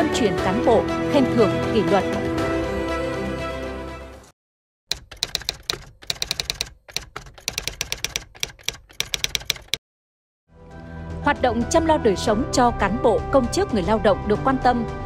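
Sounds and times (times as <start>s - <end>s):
typewriter key clacks: 4.9s - 9.8s.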